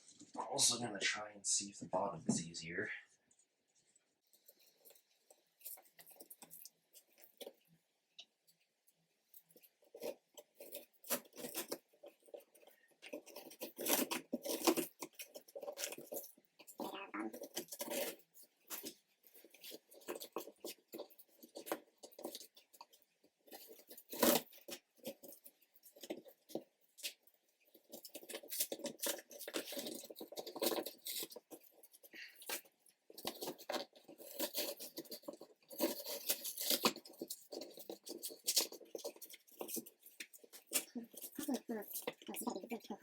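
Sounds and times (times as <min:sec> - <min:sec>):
cardboard glue tearing: 0:09.9 - 0:12.3, 0:13.1 - 0:22.6, 0:23.4 - 0:27.2, 0:27.8 - 0:42.6
cardboard scraping and rustling: 0:09.9 - 0:42.8.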